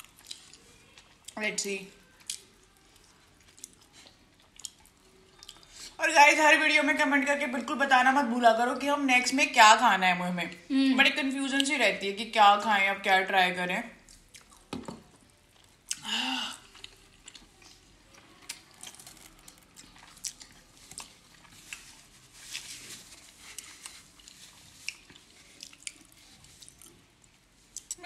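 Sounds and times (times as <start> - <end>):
wet chewing with mouth clicks: 0.0 - 1.4, 2.0 - 6.0, 14.0 - 28.0.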